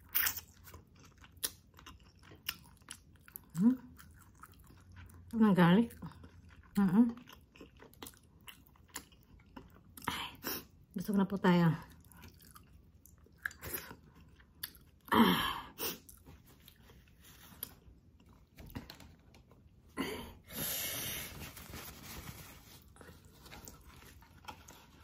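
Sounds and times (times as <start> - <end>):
wet chewing and mouth sounds: 0.0 - 10.9, 11.9 - 15.1.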